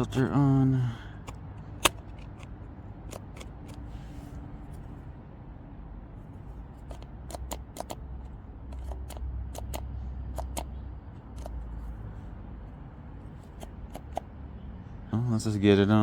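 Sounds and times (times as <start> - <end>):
plastic clicks and taps: 1.2 - 3.8, 6.9 - 8.0, 8.7 - 10.8, 13.6 - 14.3.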